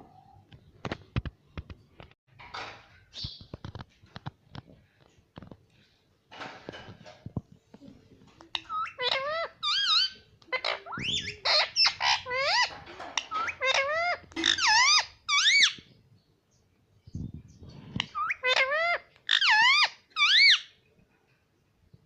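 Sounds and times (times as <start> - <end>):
parrot squeaky calls: 8.5 - 15.9, 18.0 - 20.8.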